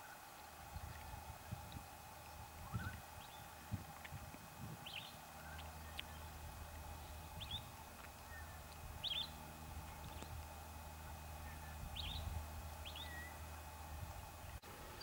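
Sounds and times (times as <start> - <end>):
low hum: 0.0 - 15.0
outdoor background noise: 0.0 - 15.0
bird chirping: 4.8 - 10.4, 11.3 - 13.5.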